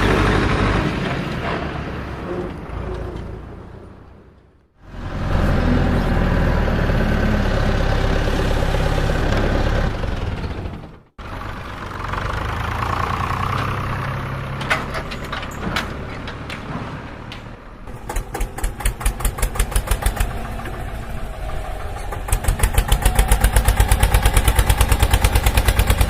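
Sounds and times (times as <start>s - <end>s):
engine running: 0.0s - 26.0s
sharp clicks or knocks: 14.5s - 20.8s.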